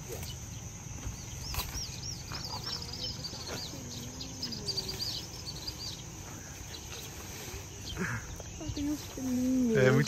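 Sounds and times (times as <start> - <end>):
songbird chirping: 0.0 - 10.0.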